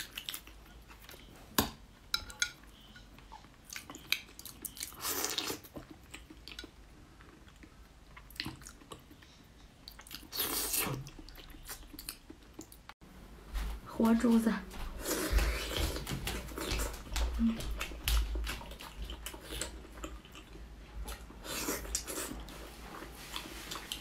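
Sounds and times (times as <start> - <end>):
wet chewing and biting: 15.0 - 22.5.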